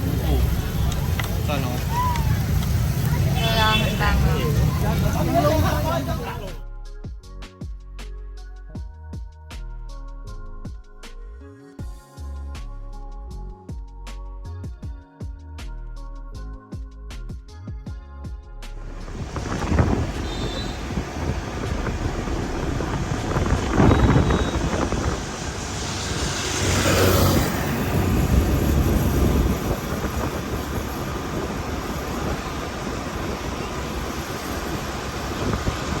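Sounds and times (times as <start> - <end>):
vehicle rumble: 0.0 - 6.6, 18.8 - 36.0
rushing swell: 18.8 - 36.0.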